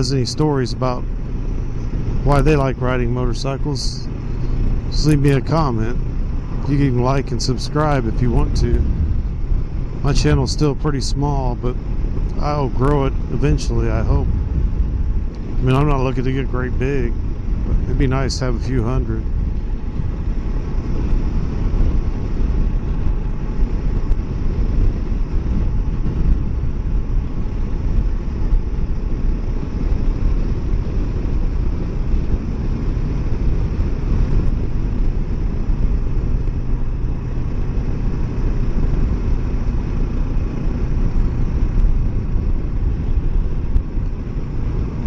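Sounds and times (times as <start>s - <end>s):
motorcycle engine running: 0.0s - 45.0s
wind rumble on microphone: 0.0s - 45.0s.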